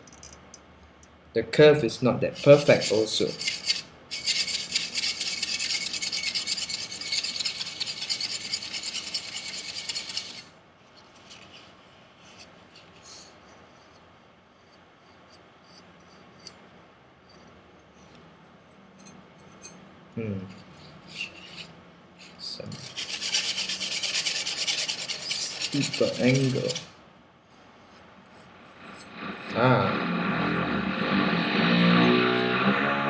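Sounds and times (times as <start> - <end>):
knife scratching on sandpaper: 2.4 - 10.5, 22.7 - 26.9.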